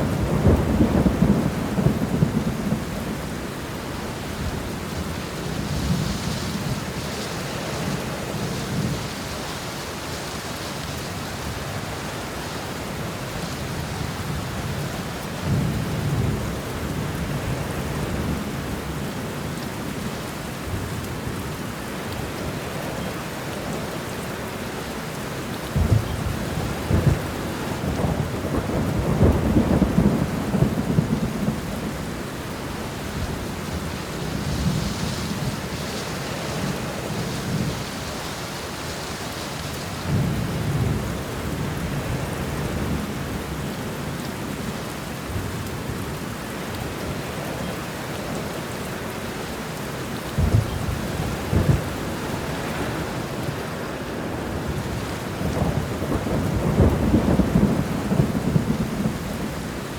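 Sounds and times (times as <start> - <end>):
steady rain: 0.0 - 59.9
rolling thunder: 25.8 - 32.3, 50.4 - 53.7, 54.3 - 59.8.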